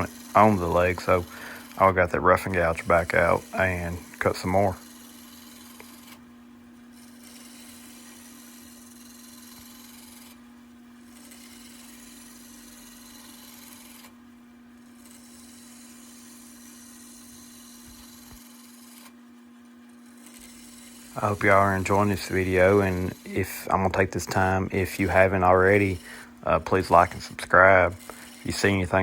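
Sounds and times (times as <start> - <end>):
gouge cutting wood hiss: 0.0 - 6.2, 20.2 - 29.0
wood lathe humming: 0.0 - 29.0.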